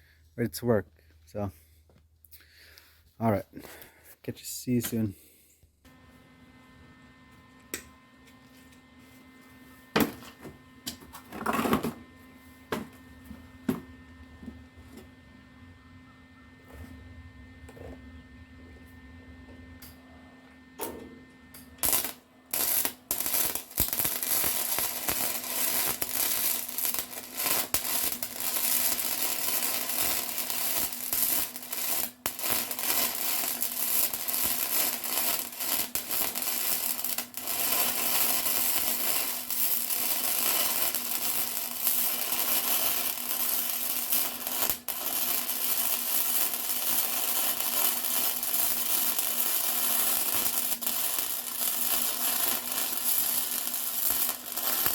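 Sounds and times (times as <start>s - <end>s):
welding arc crackling: 21.6s - 54.9s.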